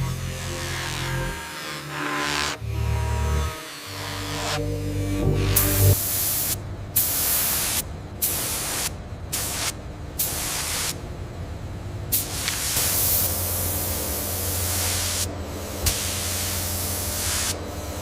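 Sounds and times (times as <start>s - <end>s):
spray gun hissing: 5.9s - 11.0s, 12.1s - 17.6s.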